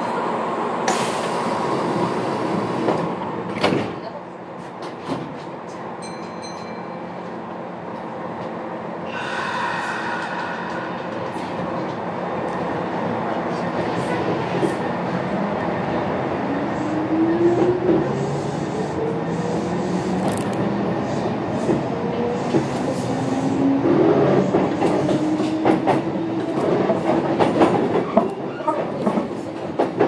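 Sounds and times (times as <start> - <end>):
train wheel and rail rumble: 0.0 - 30.0
high ringing: 6.0 - 7.2.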